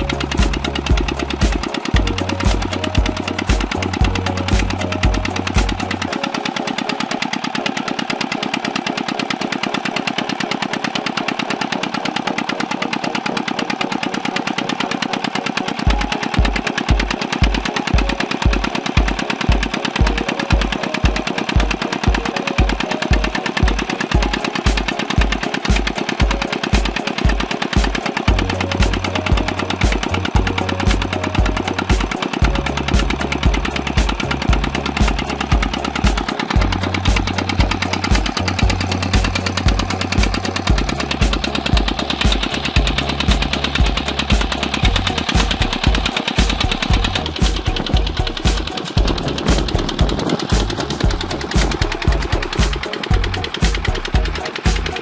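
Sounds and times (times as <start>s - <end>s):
diesel water pump engine chugging: 0.0s - 55.0s.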